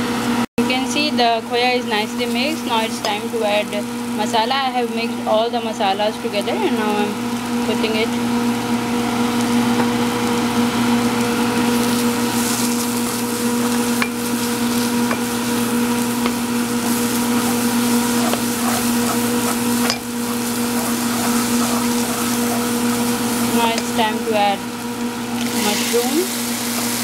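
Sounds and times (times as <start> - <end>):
food sizzling in a pan: 0.9 - 27.0
steady hum: 10.5 - 27.0
spatula scraping a pan: 13.6 - 24.0.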